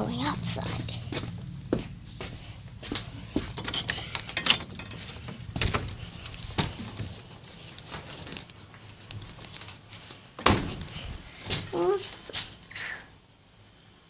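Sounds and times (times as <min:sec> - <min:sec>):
knocks and clicks of handling: 0:03.4 - 0:07.1.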